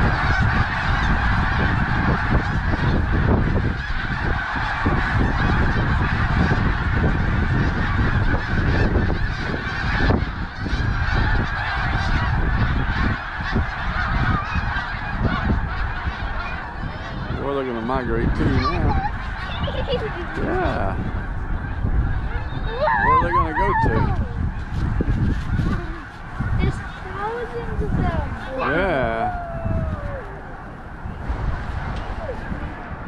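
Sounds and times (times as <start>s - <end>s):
geese honking: 0.0s - 33.0s
steady low rumble: 24.0s - 28.6s, 29.3s - 33.0s.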